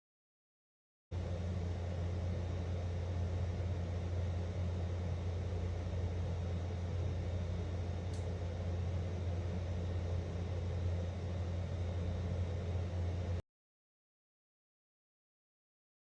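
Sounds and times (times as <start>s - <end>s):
steady low hum: 1.2s - 13.4s.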